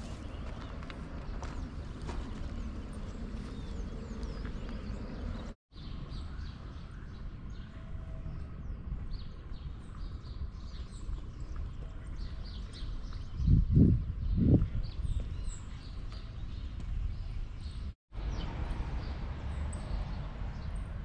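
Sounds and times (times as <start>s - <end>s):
birds chirping and calling: 0.0s - 18.4s.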